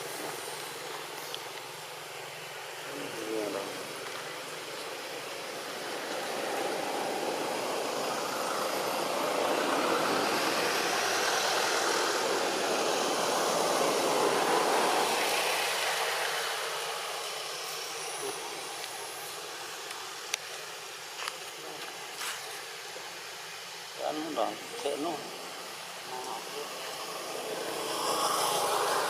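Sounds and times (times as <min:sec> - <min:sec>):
motor vehicle passing by: 0:05.6 - 0:17.2, 0:26.3 - 0:29.0.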